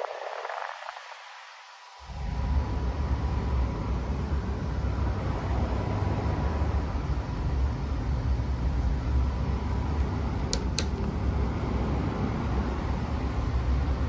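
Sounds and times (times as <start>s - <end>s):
air conditioner running: 2.1s - 14.0s
short clicks: 10.4s - 11.1s.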